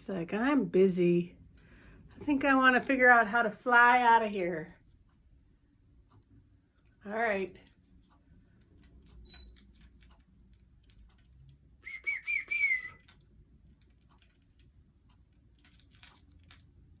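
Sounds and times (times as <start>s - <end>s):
faint scattered clicks: 4.2s - 17.0s
parrot whistle: 11.8s - 13.0s.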